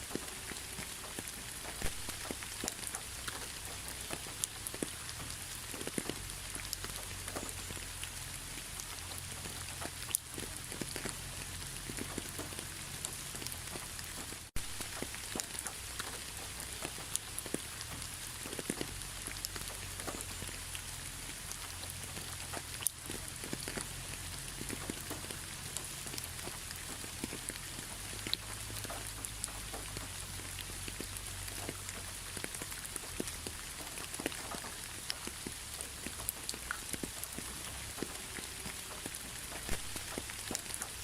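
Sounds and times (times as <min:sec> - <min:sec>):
raindrops ticking on a surface: 0:00.0 - 0:41.0
steady rain falling: 0:00.0 - 0:41.0.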